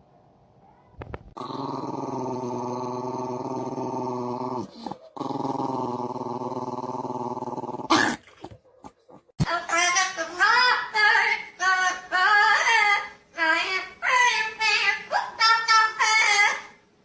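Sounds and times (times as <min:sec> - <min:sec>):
dog growling: 0:01.4 - 0:09.3.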